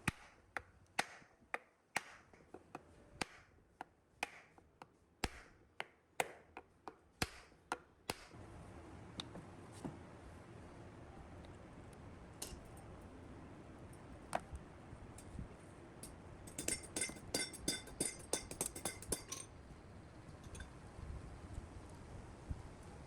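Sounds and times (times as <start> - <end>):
small metal parts clinking: 16.0 - 19.6.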